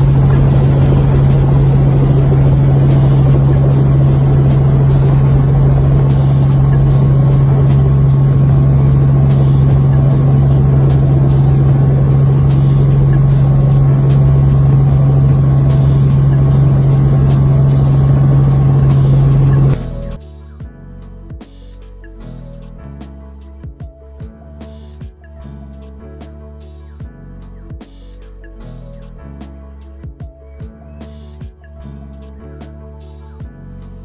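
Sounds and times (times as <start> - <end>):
helicopter cabin drone: 0.0 - 20.2.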